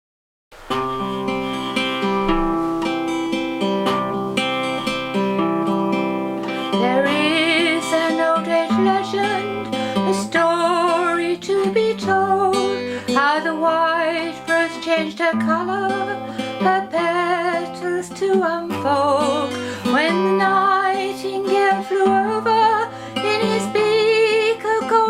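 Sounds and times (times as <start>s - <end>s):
acoustic guitar playing: 0.5s - 25.0s
woman singing with vibrato: 6.7s - 25.0s.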